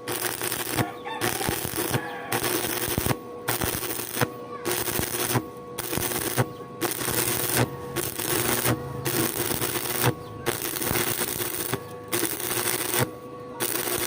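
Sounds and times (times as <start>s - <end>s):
steady hum: 0.0s - 14.0s
welding arc crackling: 0.0s - 14.0s.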